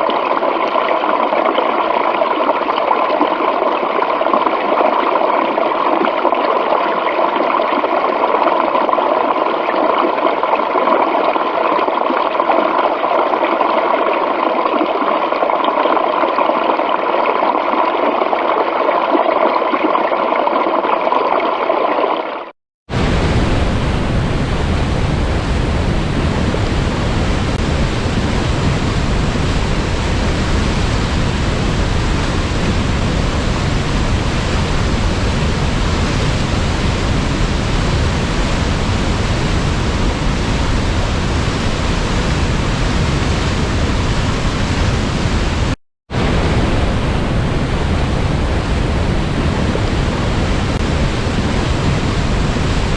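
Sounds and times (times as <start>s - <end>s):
waterfall rushing: 22.9s - 47.7s.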